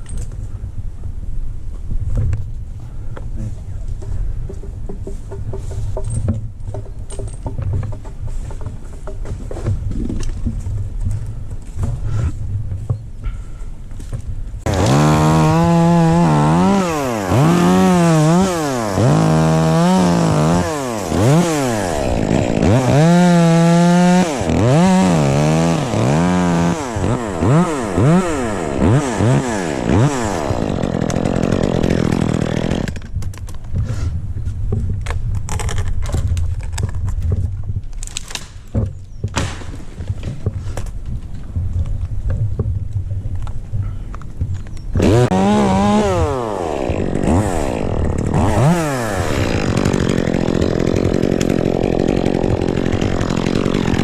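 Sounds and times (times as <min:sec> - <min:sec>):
scattered knocks: 0:04.0 - 0:10.9
chainsaw revving: 0:14.6 - 0:33.0, 0:45.0 - 0:54.0.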